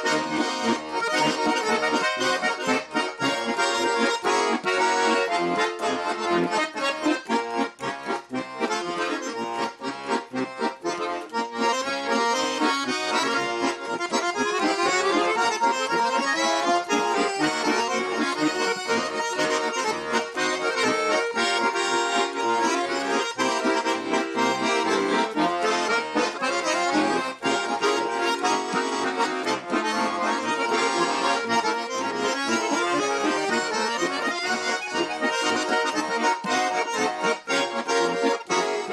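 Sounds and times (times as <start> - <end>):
button accordion folk solo: 0.0 - 38.9.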